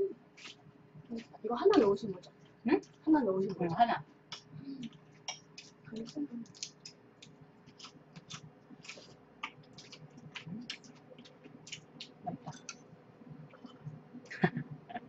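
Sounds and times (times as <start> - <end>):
chewing crisp raw vegetables: 0.3 - 3.0, 4.3 - 12.9.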